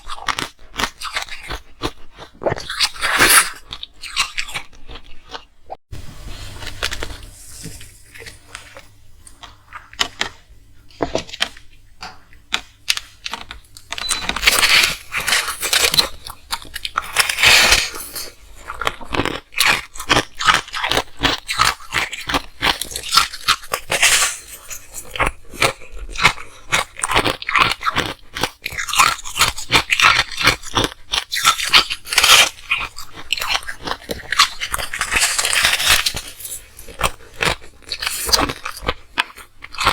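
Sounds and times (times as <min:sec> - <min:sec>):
ice being chewed: 0:00.0 - 0:05.6, 0:06.5 - 0:39.9.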